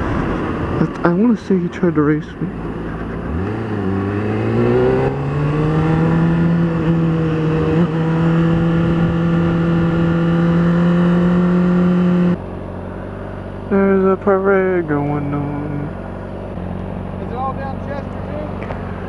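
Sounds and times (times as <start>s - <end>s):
motorcycle engine accelerating: 2.1s - 19.0s.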